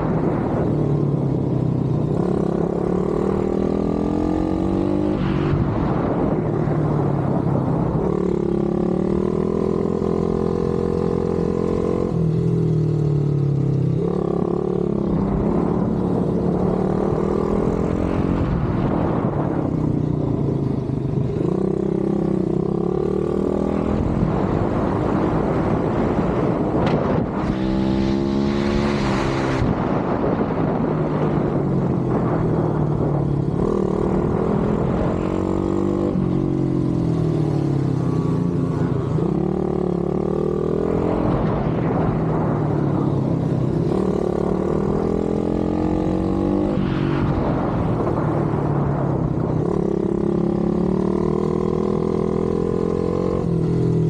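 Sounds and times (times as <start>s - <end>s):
motorbike engine revving: 20.4s - 54.0s.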